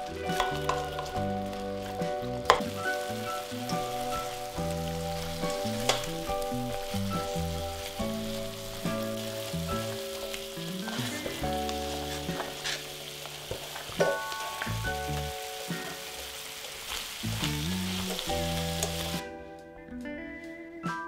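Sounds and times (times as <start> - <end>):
carrots clattering into a pan: 0.0 - 19.2
meat and onions sizzling in oil: 0.0 - 19.2
spatula scraping a pan: 2.5 - 14.6.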